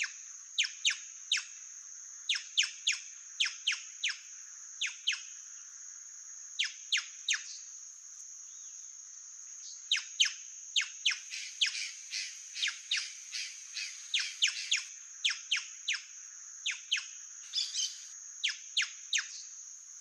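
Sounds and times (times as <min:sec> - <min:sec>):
high-pitched insect drone: 0:11.0 - 0:14.9.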